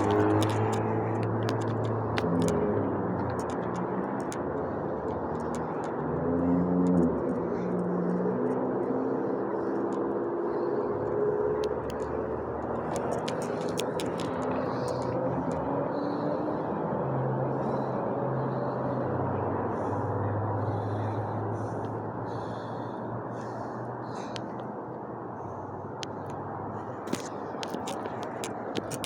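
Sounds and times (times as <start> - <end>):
faint clicks: 0.0 - 2.6, 9.6 - 16.3, 27.0 - 29.0
vehicle engine rumble: 0.0 - 29.0.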